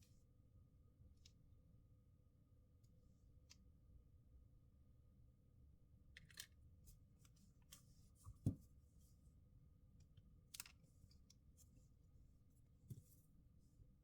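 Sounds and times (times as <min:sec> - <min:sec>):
dull tap on work surface: 0:08.4 - 0:08.6.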